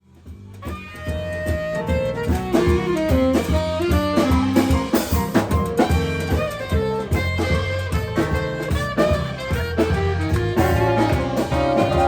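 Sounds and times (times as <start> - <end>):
drums and bass beat: 0.0 - 12.0
melodic lead line: 10.5 - 12.0.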